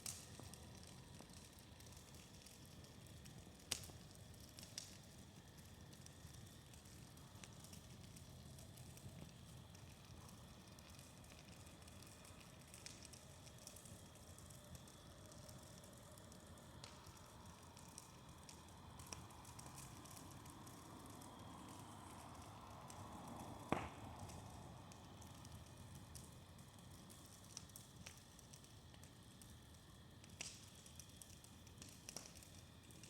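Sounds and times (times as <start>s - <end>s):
bonfire crackling: 0.0s - 33.0s
sharp pop of fire: 23.6s - 24.4s.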